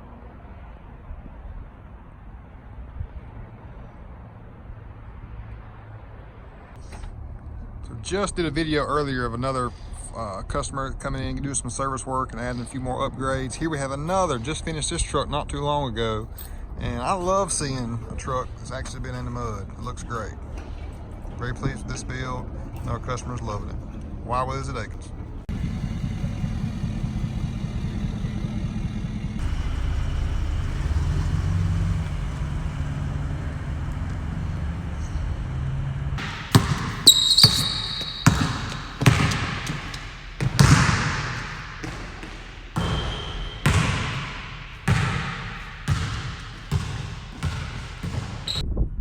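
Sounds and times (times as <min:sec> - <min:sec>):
engine running: 0:25.2 - 0:48.6.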